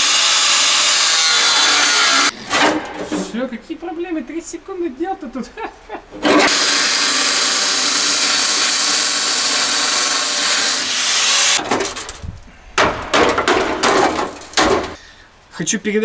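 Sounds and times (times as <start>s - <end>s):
power tool cutting metal: 0.0s - 3.1s, 6.2s - 12.2s
metal knocking and scraping: 0.8s - 4.5s, 5.4s - 15.0s.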